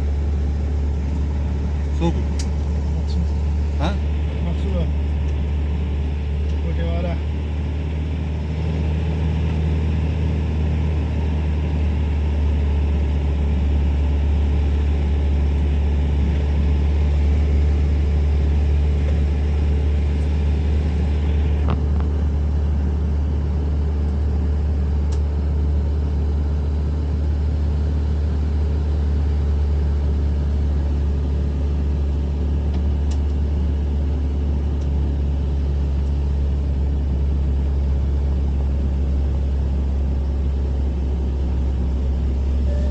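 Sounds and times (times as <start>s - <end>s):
vehicle engine and road noise: 0.0s - 42.9s.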